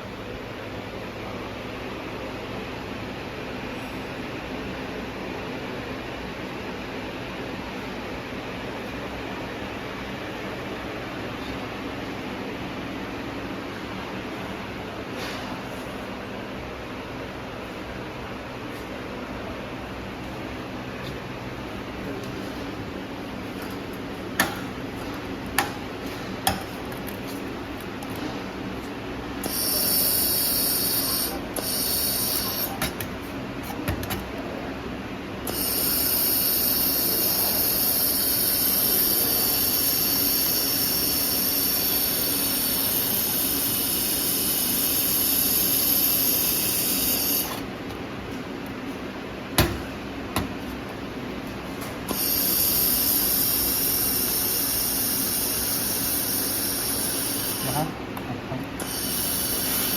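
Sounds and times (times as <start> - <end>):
welding machine hum: 21.6 - 48.3, 49.5 - 59.9
high hissing: 29.4 - 32.8, 52.1 - 58.0, 58.8 - 59.9.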